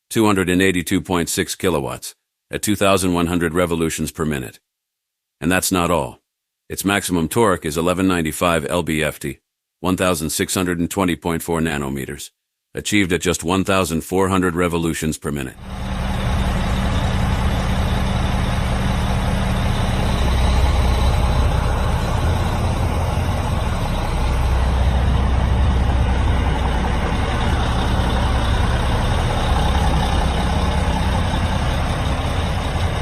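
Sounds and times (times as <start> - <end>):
tractor diesel engine humming: 15.6 - 33.0.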